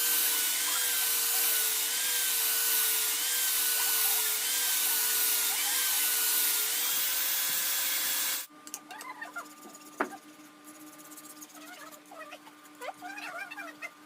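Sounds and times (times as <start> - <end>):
electric power tool running: 0.0 - 8.5.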